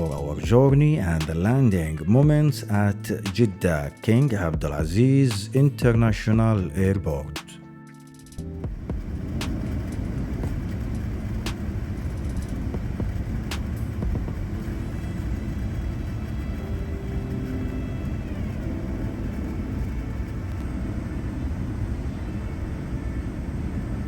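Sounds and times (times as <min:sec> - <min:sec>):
airliner cabin rumble: 0:08.4 - 0:24.0.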